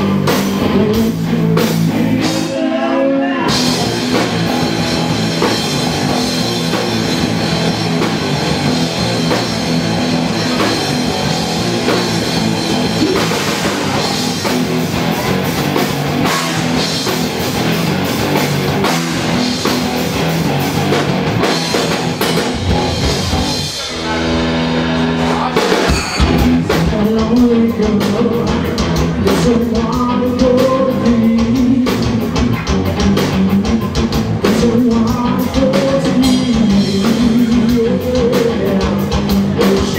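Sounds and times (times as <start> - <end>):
person singing: 0.0 - 4.2, 23.7 - 39.9
drums: 0.0 - 39.9
electric guitar: 0.0 - 39.9
rock band playing live: 0.0 - 39.9.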